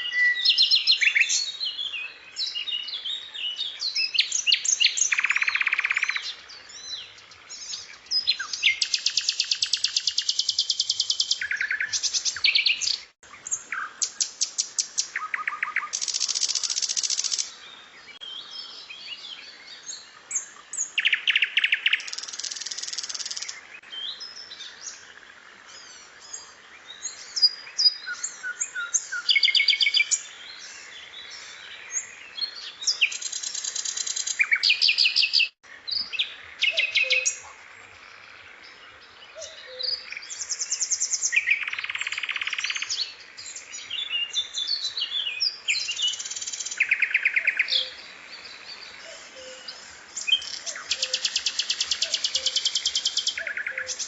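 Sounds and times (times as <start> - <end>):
songbirds trilling and chirping: 0.0 - 54.0.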